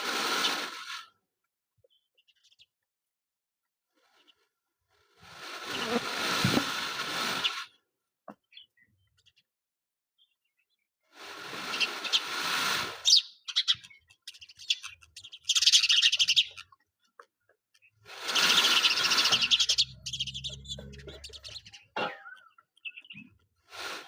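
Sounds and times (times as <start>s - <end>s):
peacock fast rattling: 11.7s - 16.8s, 18.1s - 23.1s.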